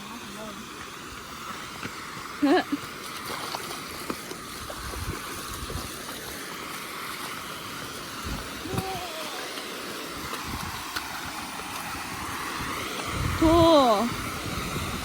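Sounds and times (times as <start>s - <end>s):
creek water rushing: 0.0s - 15.0s
wind rumbling on microphone: 3.8s - 6.3s, 8.2s - 9.2s, 10.1s - 15.0s.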